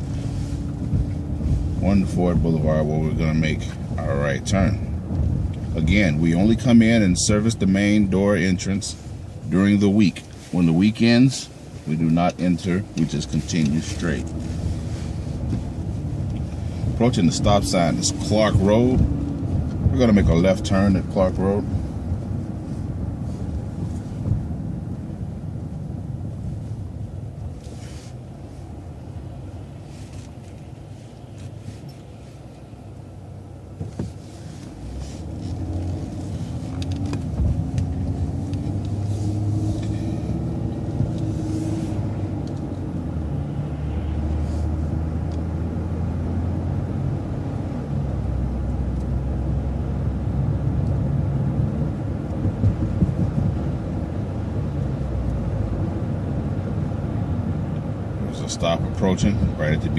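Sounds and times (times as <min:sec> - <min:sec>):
bus engine: 0:00.0 - 0:59.9
road rumble: 0:00.0 - 0:59.9.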